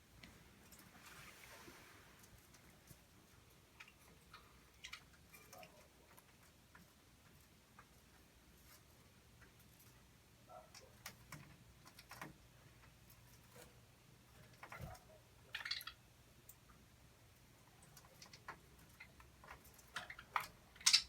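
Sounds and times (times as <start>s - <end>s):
soft bird chirp: 3.3s - 6.5s
budgerigars clicking and ticking: 3.3s - 10.1s, 14.4s - 21.0s.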